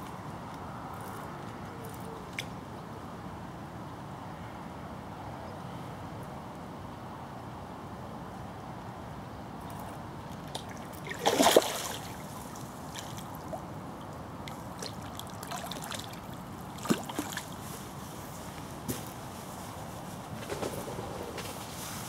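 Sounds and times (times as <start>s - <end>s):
flowing river water: 9.8s - 18.0s
water splashing: 10.4s - 13.8s, 14.5s - 17.6s.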